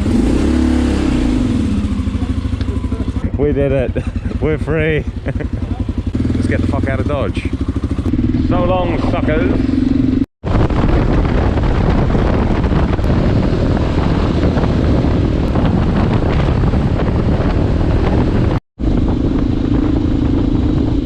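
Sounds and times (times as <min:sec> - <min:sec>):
motorcycle engine running: 0:00.0 - 0:21.0
wind rush on microphone: 0:07.6 - 0:21.0.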